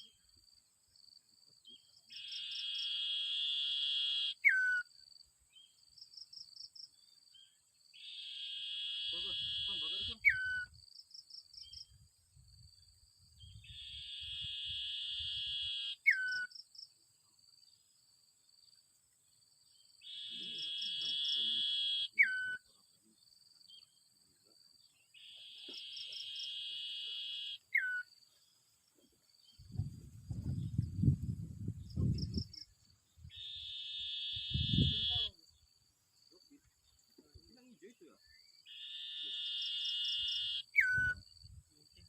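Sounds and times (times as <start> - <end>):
high insect drone: 0.0 - 22.2, 22.8 - 42.0
songbird buzzy trill: 8.0 - 10.8, 30.6 - 35.5.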